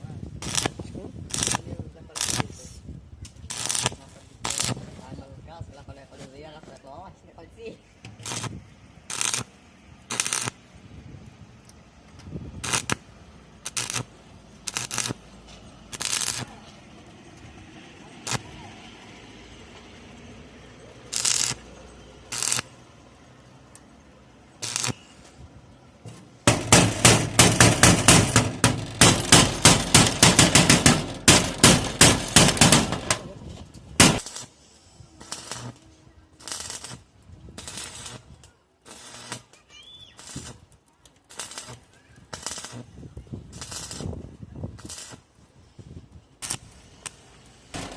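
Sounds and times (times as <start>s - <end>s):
hammer striking metal: 26.5s - 33.3s, 34.0s - 34.2s.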